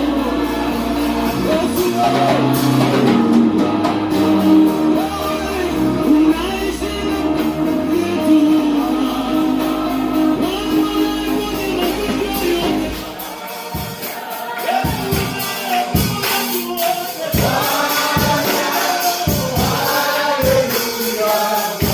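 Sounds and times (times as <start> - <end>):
deep bass: 0.0 - 13.1
people singing with band: 0.0 - 21.9
steady percussive beat: 0.0 - 21.9.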